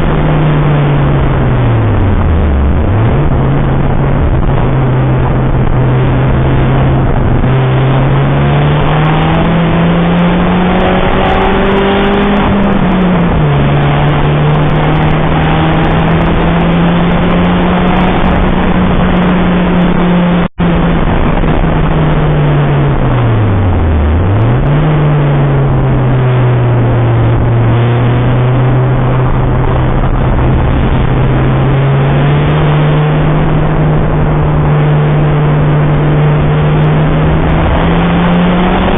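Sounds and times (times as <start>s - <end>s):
car engine revving: 0.0s - 38.9s
wind and road noise: 0.0s - 38.9s.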